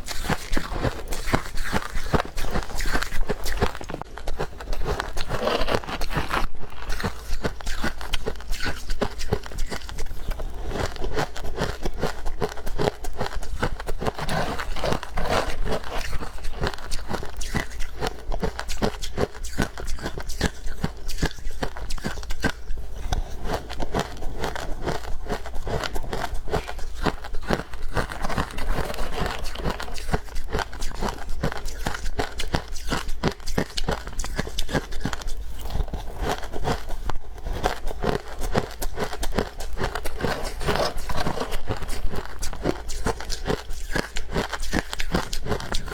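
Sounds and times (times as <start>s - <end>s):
chewing and crunching frost: 0.0s - 45.9s.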